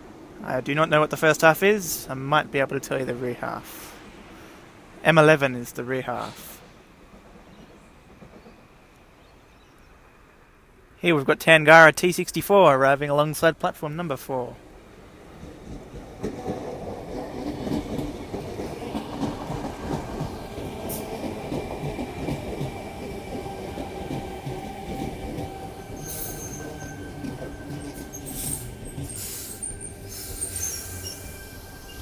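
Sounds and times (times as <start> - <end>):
train wheels rumbling on rail: 0.0 - 10.2, 14.6 - 32.0
short bursts of hiss: 28.3 - 31.2.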